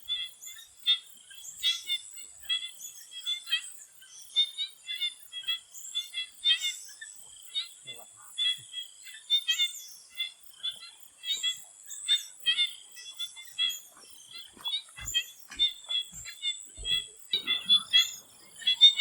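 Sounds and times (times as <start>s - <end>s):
frogs calling in chorus: 0.0s - 19.0s
high insect tone: 6.8s - 19.0s
soft low thumps: 14.5s - 19.0s.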